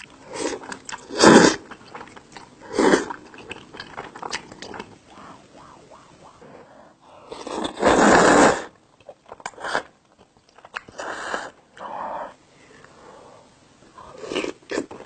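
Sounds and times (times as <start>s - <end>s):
wet chewing and biting: 3.1s - 5.3s
noisy bursts: 4.7s - 8.5s.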